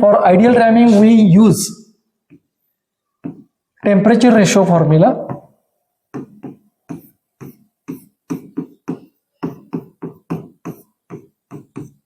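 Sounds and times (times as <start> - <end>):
pen strokes of handwriting: 6.2 - 12.0.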